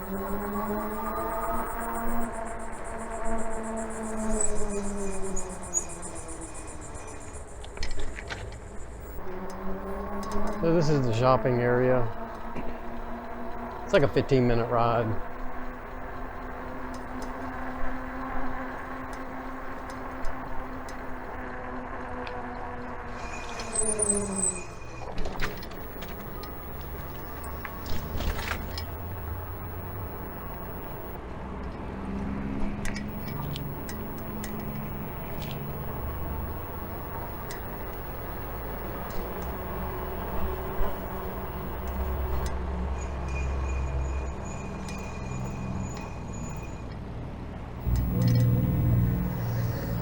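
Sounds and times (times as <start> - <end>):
motor whine falling in pitch: 0.0 - 5.7, 25.4 - 31.2, 33.1 - 42.5, 47.8 - 50.0
brakes squealing: 0.0 - 21.4, 23.1 - 31.2, 33.0 - 47.0, 47.8 - 50.0
light clicks: 25.4 - 31.2, 32.9 - 42.5, 47.8 - 50.0.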